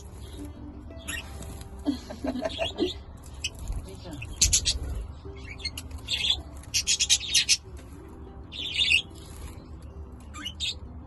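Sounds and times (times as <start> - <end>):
wings flapping: 0.0 - 5.1
budgerigars chirping: 2.5 - 7.7, 8.5 - 9.2, 10.3 - 10.9.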